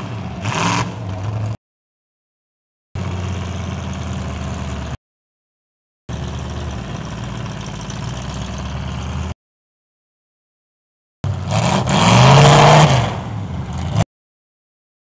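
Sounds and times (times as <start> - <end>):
truck engine running: 3.0 - 5.0, 6.1 - 9.4.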